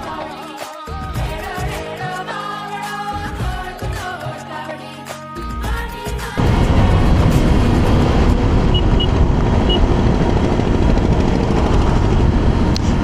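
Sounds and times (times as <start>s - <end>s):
background music: 0.0s - 8.1s
motorcycle engine: 6.4s - 13.0s
wind and road noise: 6.4s - 13.0s.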